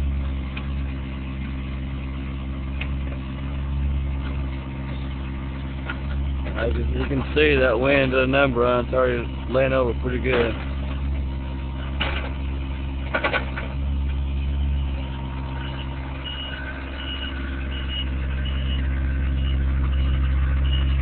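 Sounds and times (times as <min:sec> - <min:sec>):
excavator diesel engine running: 0:00.0 - 0:21.0
short high beeps: 0:14.6 - 0:18.8.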